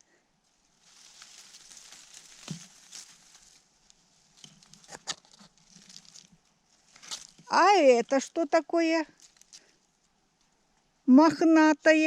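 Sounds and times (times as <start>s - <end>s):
dry leaves and twigs crackling: 0.0s - 11.0s.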